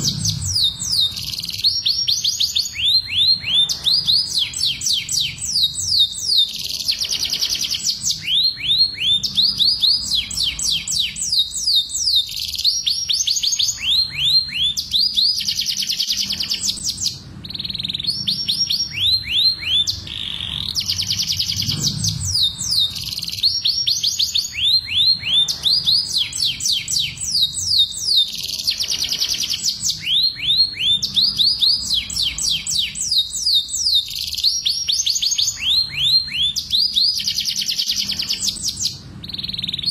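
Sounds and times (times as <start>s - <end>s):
canaries singing trills: 0.0s - 39.9s.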